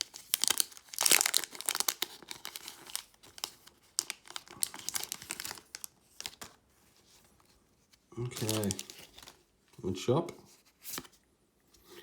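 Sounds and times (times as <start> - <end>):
foil wrapper crinkling: 0.0 - 6.6, 8.2 - 9.4.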